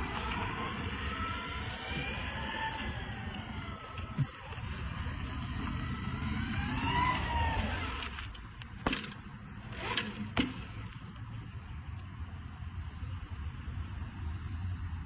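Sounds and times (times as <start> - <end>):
whine rising and falling: 0.0 - 8.2
vehicle engine rumbling: 0.0 - 14.0.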